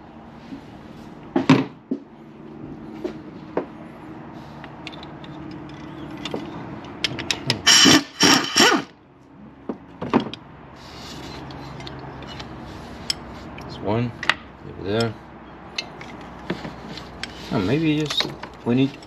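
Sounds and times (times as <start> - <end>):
tools and metal parts clinking: 4.7 - 8.7, 15.8 - 19.0
power tool spinning on bolt: 7.6 - 8.9.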